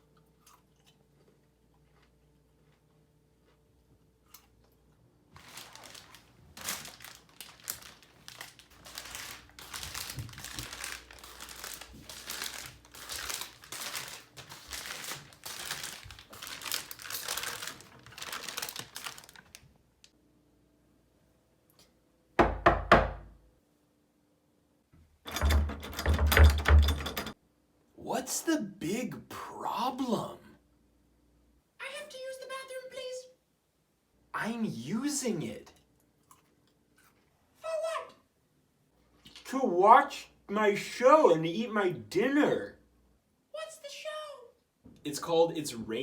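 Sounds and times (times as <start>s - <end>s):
packaging crinkling: 5.4s - 19.8s.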